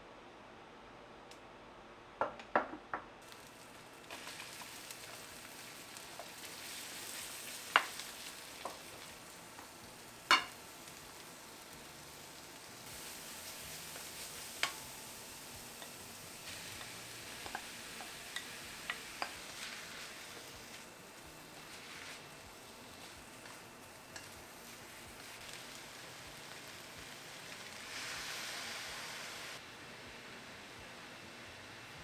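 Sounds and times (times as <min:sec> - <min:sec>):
food sizzling in a pan: 0:03.2 - 0:32.0
utensil knocking against pan: 0:10.3 - 0:10.5.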